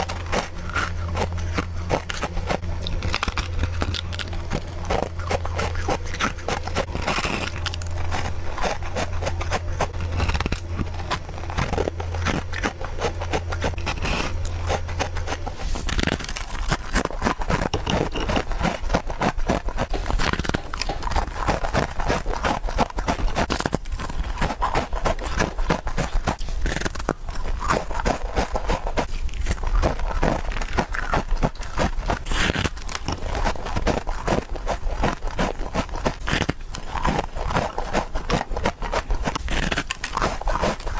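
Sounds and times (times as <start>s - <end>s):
low hum: 0.0s - 22.4s
biting and crunching ice: 0.0s - 40.9s.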